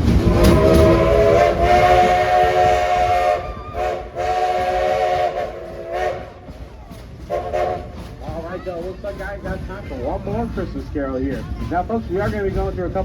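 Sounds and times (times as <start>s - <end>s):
steam locomotive chime whistle: 0.3s - 6.4s.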